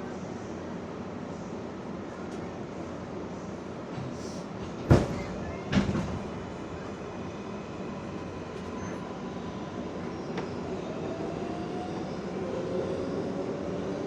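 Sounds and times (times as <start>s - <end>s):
subway train wheels rumbling: 0.0s - 14.0s.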